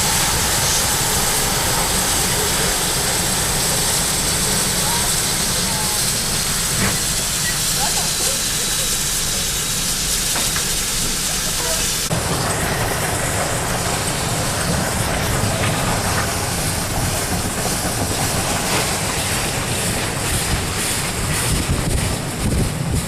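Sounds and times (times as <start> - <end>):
steam train rumbling: 0.0 - 23.0
wind noise on microphone: 20.2 - 23.0.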